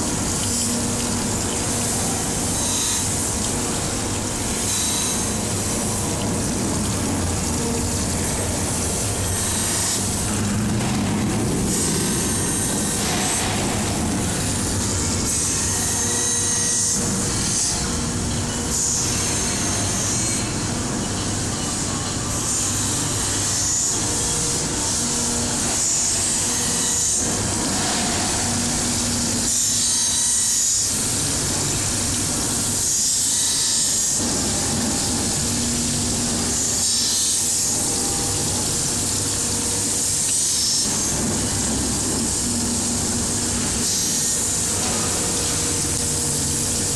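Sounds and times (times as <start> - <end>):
grinding machine rubbing metal: 0.0 - 17.8.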